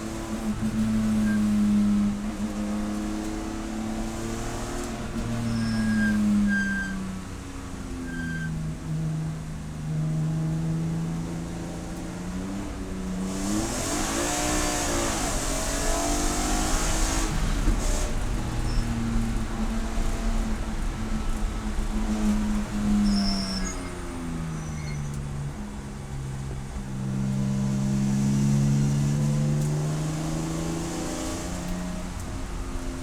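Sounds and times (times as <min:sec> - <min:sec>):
race car engine: 0:00.0 - 0:33.0.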